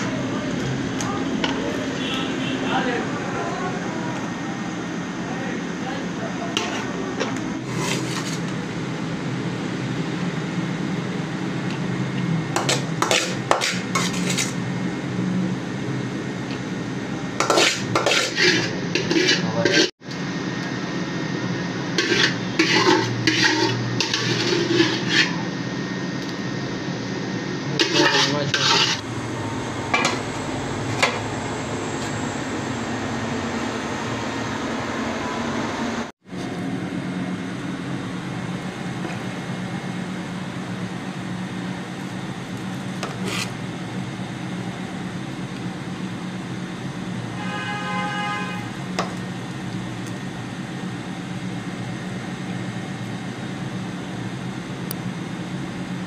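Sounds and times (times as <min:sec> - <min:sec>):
steady hum: 0:00.0 - 0:56.0
metal utensil scraping a pot: 0:06.6 - 0:08.4, 0:12.6 - 0:14.6, 0:17.4 - 0:19.9, 0:22.0 - 0:25.4, 0:27.8 - 0:29.0.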